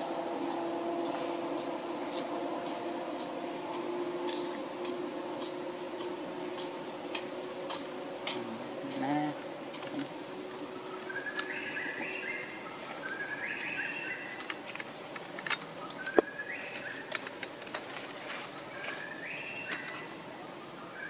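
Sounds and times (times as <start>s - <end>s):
high insect drone: 0.0s - 21.0s
bird singing rising phrase: 10.8s - 14.4s.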